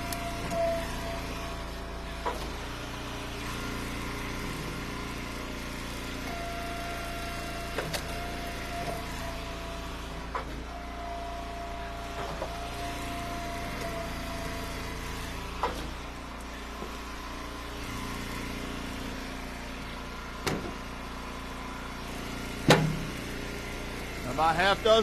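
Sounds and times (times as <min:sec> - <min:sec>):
gas engine running: 0:00.0 - 0:25.0
firewood splitting knocks: 0:20.4 - 0:20.8, 0:22.7 - 0:23.2.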